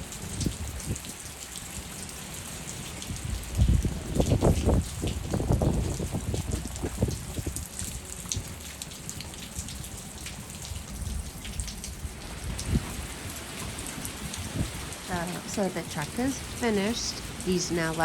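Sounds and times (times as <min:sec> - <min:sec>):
heavy rain falling: 0:00.0 - 0:18.0
sharp raindrop hits: 0:03.0 - 0:18.0.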